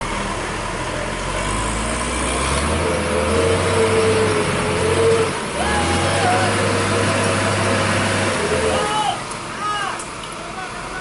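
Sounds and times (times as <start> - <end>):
truck engine under heavy load: 0.0 - 11.0.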